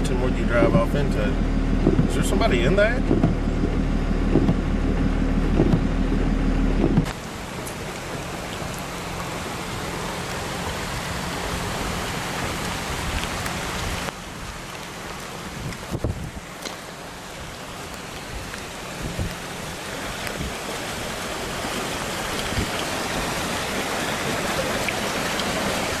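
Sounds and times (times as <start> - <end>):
floodwater rushing across road: 0.0 - 26.0
heavy rain: 0.0 - 26.0
vehicle engine idling: 0.0 - 26.0.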